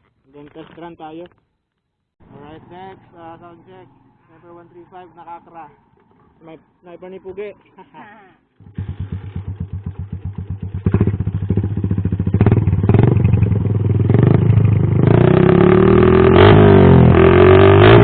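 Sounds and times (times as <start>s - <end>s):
motorcycle engine revving: 8.6s - 18.0s.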